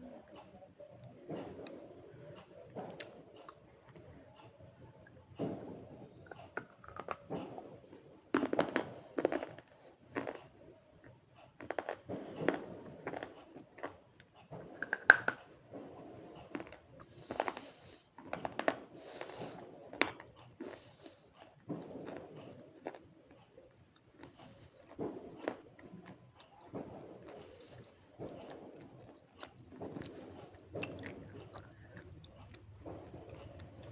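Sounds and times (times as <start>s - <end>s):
person crunching chewing: 29.4s - 33.8s.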